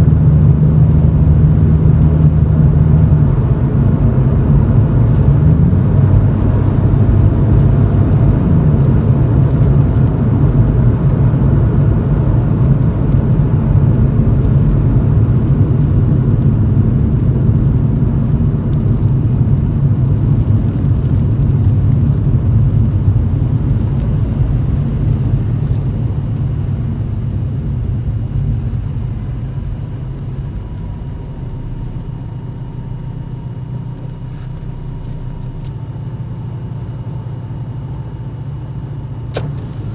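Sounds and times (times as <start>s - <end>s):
car exhaust low drone: 0.0s - 39.9s.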